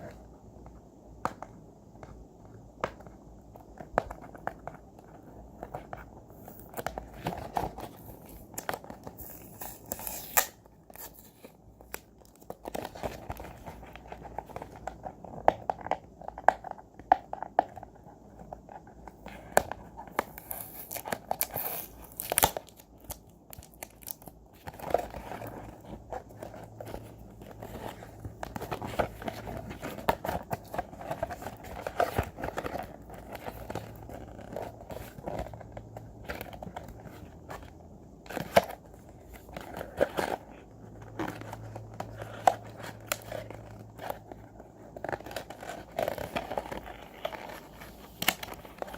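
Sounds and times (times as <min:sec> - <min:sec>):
packaging crinkling and tearing: 0:05.6 - 0:16.8, 0:19.4 - 0:37.7, 0:38.3 - 0:48.9.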